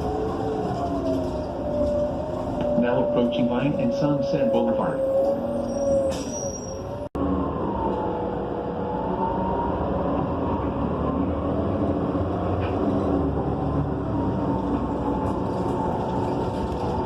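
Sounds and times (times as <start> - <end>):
road noise: 0.0 - 17.0
bus engine running: 6.1 - 17.0.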